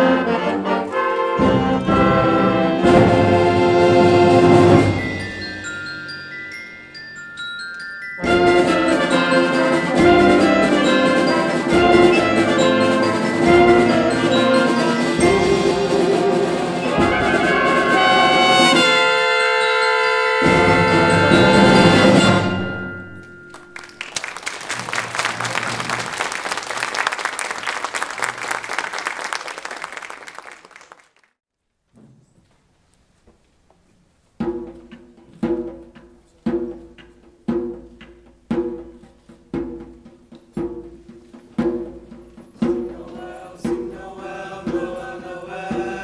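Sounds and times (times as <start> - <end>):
concert band playing: 0.0 - 6.0, 8.2 - 28.1
audience applause: 23.5 - 31.4.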